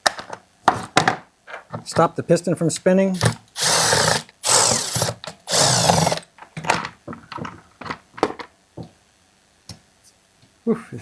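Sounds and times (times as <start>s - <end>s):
power drill-driver bursts: 3.2s - 6.3s.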